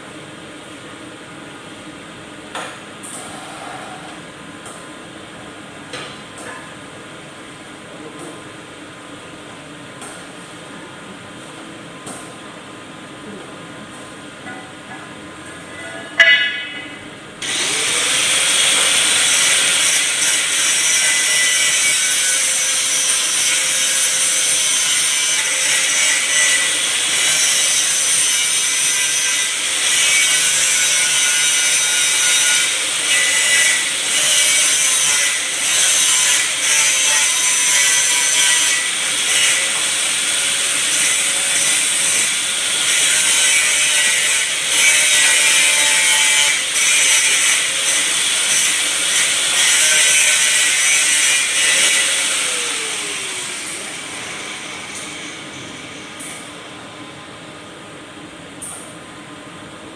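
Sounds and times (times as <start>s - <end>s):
machine hissing whir: 17.4s - 21.8s, 51.4s - 56.8s.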